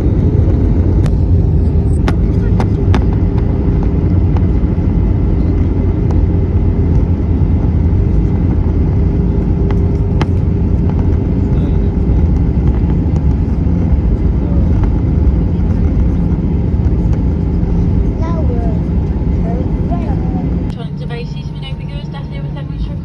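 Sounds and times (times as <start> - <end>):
aircraft engine rumble: 0.0 - 23.0
steady hum: 0.0 - 23.0.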